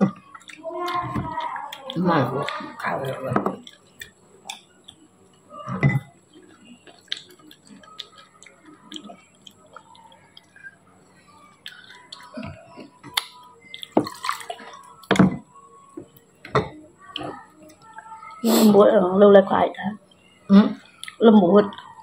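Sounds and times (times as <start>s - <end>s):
chewing with wet mouth clicks: 0.2s - 5.1s, 6.3s - 10.8s, 11.6s - 15.1s, 20.2s - 22.0s.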